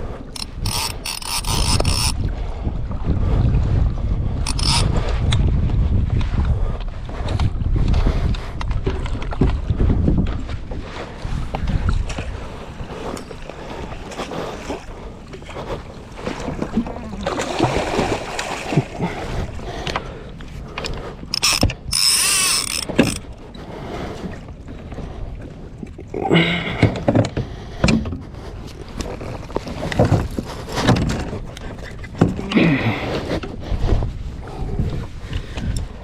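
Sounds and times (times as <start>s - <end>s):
fishing reel clicking and whirring: 0.3s - 2.2s, 4.4s - 5.0s, 21.3s - 23.2s.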